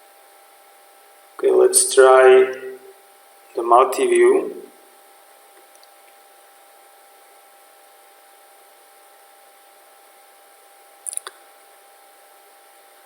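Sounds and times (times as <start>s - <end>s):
low electrical hum: 0.0s - 13.0s
background hiss: 1.3s - 5.0s.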